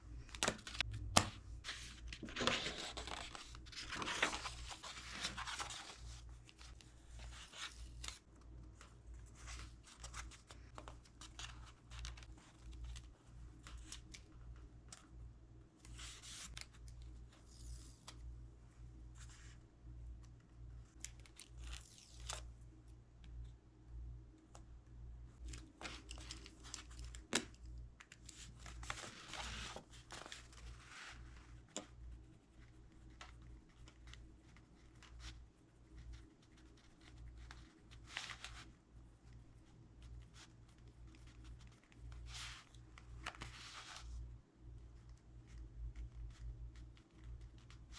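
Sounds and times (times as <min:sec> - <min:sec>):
low steady hum: 0:00.0 - 0:47.9
book pages turning: 0:00.2 - 0:14.3, 0:15.8 - 0:18.2, 0:25.4 - 0:31.9, 0:40.2 - 0:44.2
paper rustling: 0:00.2 - 0:14.3, 0:25.4 - 0:27.5, 0:28.3 - 0:31.9.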